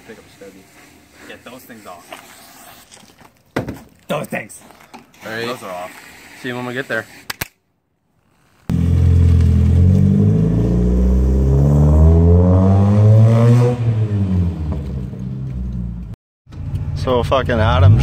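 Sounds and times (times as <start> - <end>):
car engine accelerating: 8.7 - 18.0.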